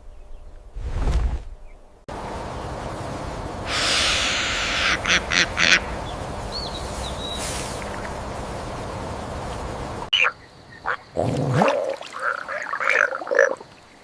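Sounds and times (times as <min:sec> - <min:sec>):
outdoor background noise: 0:00.0 - 0:14.0
whoosh: 0:00.6 - 0:01.8.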